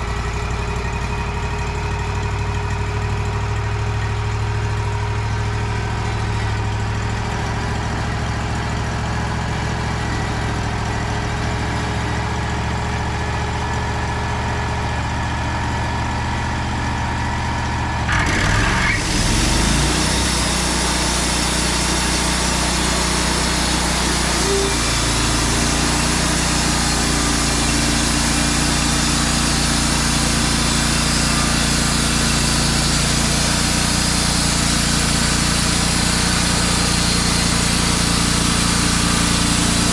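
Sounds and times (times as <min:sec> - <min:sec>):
sawmill engine humming: 0:00.0 - 0:39.9
band saw hiss: 0:23.2 - 0:28.5.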